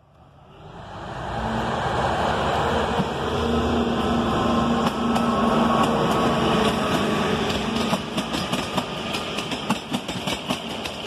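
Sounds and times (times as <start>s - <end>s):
diesel locomotive engine running: 0.5s - 11.0s
wheels clicking over rail joints: 4.8s - 11.0s.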